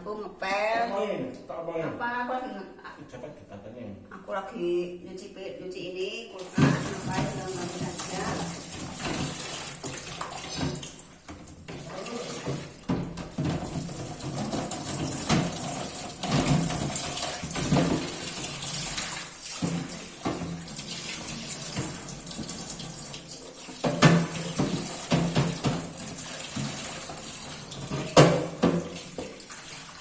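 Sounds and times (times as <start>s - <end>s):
tap water running and splashing: 6.4s - 30.0s.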